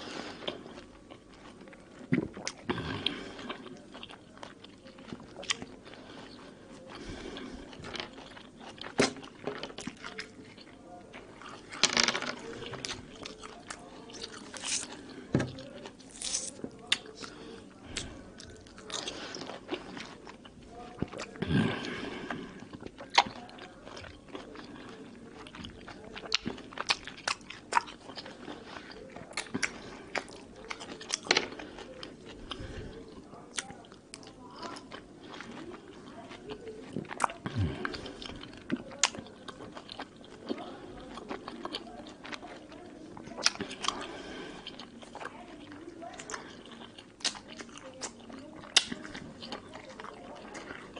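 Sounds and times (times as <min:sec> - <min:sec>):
chewing orange segments: 0:00.0 - 0:50.9.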